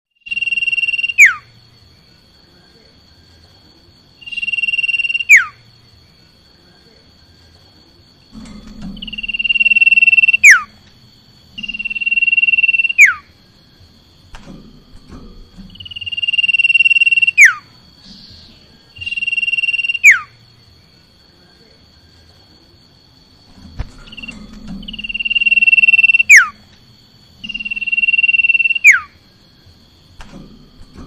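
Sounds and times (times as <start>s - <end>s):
bird singing long whistles: 0.2s - 1.5s, 4.2s - 5.6s, 9.0s - 10.7s, 11.6s - 13.3s, 15.7s - 20.4s, 24.9s - 26.6s, 27.4s - 29.2s.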